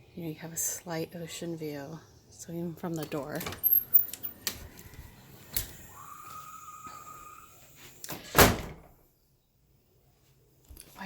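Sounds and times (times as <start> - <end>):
door closing thump: 8.1 - 8.9.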